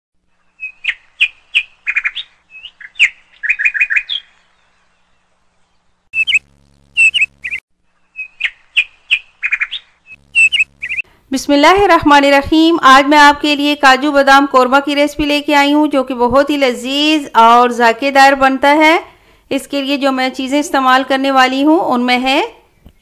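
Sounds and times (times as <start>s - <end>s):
bird chirping: 0.3s - 11.0s.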